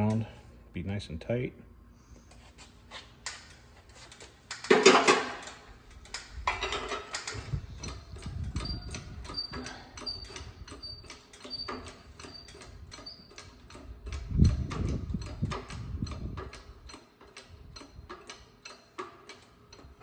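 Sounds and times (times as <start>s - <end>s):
loud metallic clatters: 4.5s - 7.6s
press brake clicks and squeaks: 7.1s - 13.8s.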